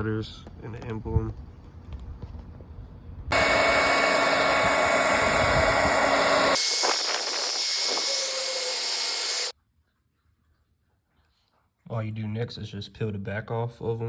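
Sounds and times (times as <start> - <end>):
hair dryer blowing: 3.3 - 9.5.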